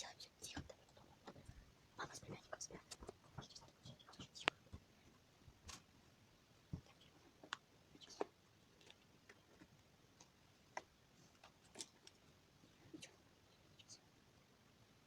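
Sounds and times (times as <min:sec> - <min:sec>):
faint clicks and light knocks: 0:02.7 - 0:05.9, 0:06.7 - 0:12.3.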